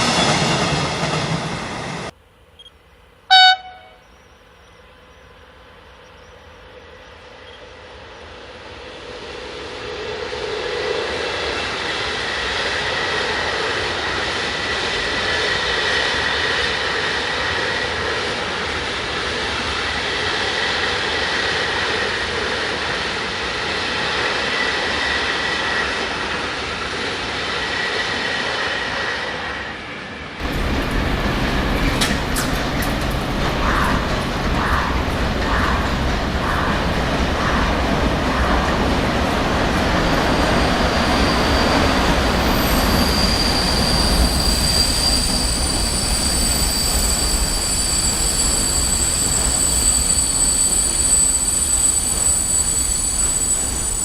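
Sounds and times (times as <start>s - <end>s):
train passing rumble: 0.0s - 54.0s
brief loud tone: 2.6s - 4.2s.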